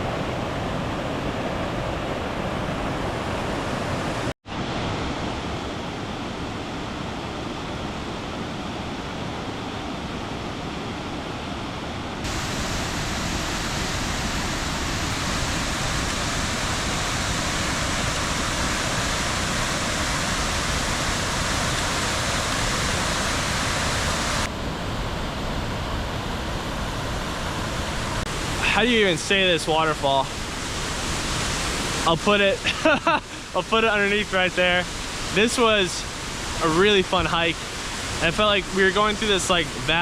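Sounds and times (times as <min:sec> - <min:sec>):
waterfall rushing: 0:12.2 - 0:24.5.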